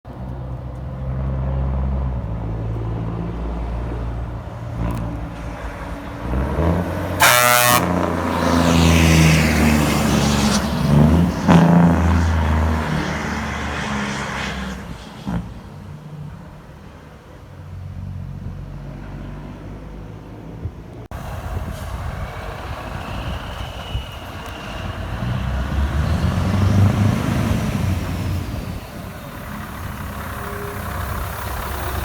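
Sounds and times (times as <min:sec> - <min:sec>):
heavy truck engines running: 0:00.1 - 0:32.0
truck horn blast: 0:06.4 - 0:10.6, 0:30.1 - 0:32.0.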